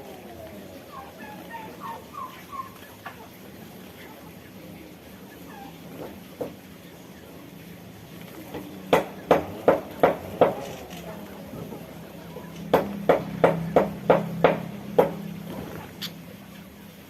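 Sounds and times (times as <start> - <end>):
sharp knocks: 8.9 - 10.8, 12.6 - 15.7.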